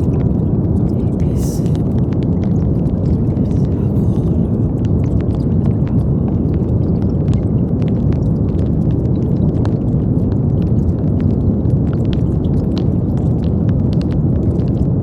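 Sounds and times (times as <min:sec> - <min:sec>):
brown noise rush: 0:00.0 - 0:09.2.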